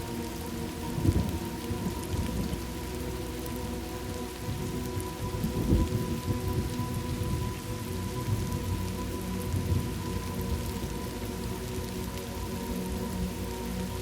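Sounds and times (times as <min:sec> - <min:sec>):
steady rain falling: 0:00.0 - 0:14.0
low rumble of thunder: 0:00.9 - 0:02.7, 0:04.4 - 0:10.9.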